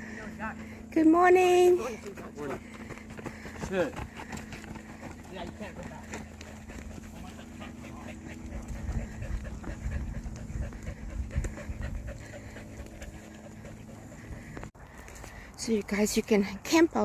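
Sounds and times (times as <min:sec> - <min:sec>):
dog panting: 0:01.7 - 0:14.8.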